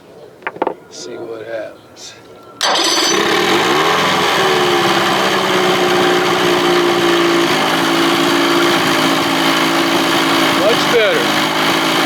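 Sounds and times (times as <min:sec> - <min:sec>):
outboard motor running: 0:02.6 - 0:12.0.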